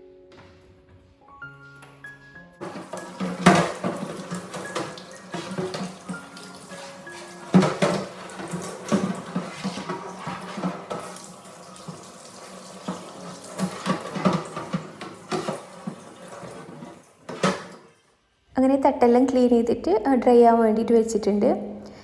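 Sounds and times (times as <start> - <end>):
shelves knocking and clattering: 2.6 - 12.0, 12.6 - 17.9
tap water running into sink: 2.6 - 18.0.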